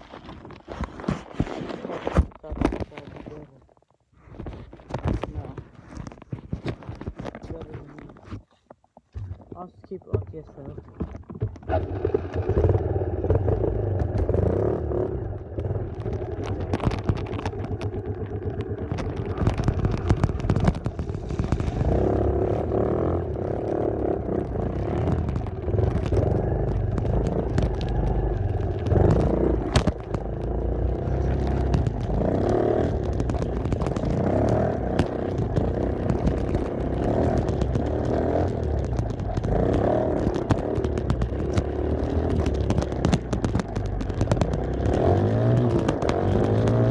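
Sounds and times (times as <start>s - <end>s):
wind rumble on microphone: 9.2s - 46.9s
dirt bike engine revving: 11.7s - 16.4s, 17.6s - 43.0s.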